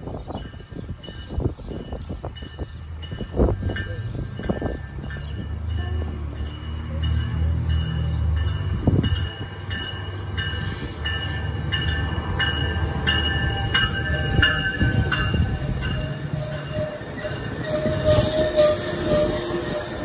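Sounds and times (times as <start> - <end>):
diesel locomotive rumbling: 0.0 - 20.0
locomotive bell ringing: 0.4 - 20.0.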